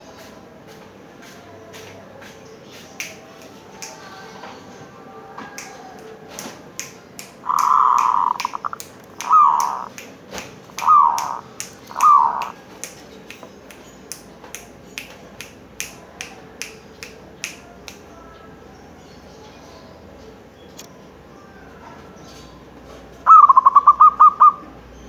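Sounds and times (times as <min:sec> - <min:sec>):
sharp clicking: 0:05.6 - 0:18.1
dove cooing: 0:07.4 - 0:10.0, 0:10.8 - 0:12.6.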